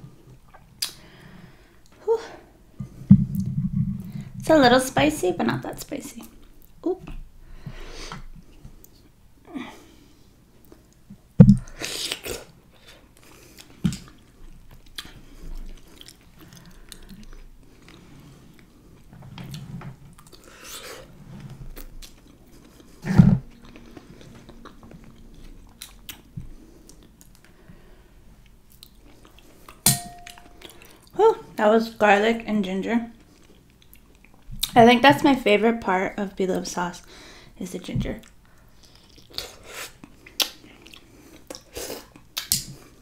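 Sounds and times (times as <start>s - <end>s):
person chewing soft food: 10.1s - 31.1s, 33.2s - 34.7s, 38.2s - 43.0s.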